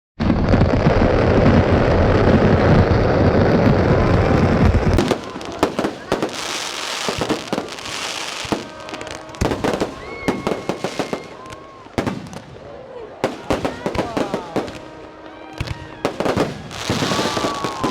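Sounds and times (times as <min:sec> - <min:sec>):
fireworks barrage: 0:00.2 - 0:17.9
sharp firework bangs: 0:15.6 - 0:17.9.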